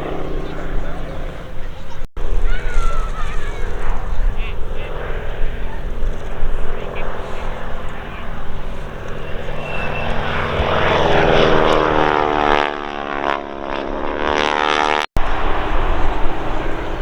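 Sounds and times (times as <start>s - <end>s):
biplane engine and propeller: 0.0s - 17.0s.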